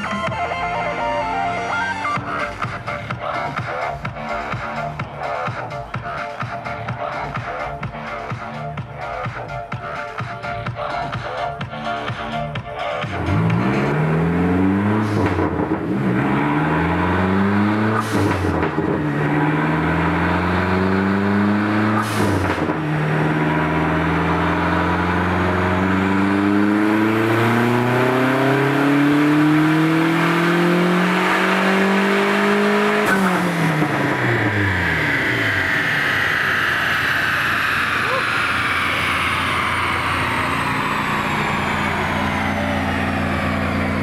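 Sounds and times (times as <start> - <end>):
car engine revving at full throttle: 0.0 - 44.0
dyno rollers coasting down: 33.7 - 44.0.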